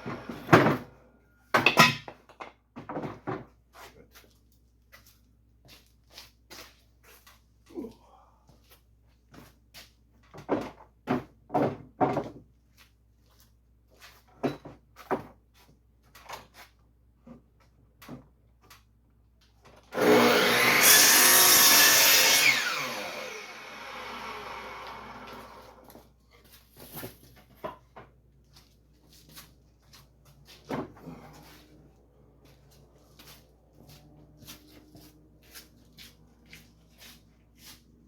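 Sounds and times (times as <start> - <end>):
electric power tool running: 20.0 - 25.9.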